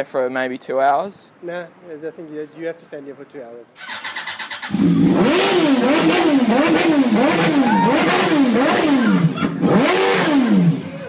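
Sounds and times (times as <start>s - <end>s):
engine revving: 3.8s - 11.0s.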